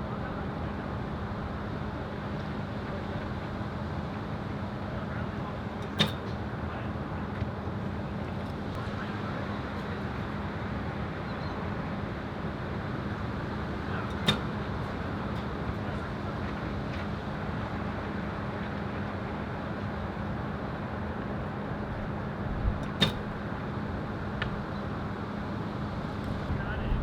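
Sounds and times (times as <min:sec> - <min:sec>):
sharp click: 0:05.8 - 0:06.4, 0:14.1 - 0:14.6, 0:22.8 - 0:23.3
wind buffeting microphone: 0:26.3 - 0:27.0.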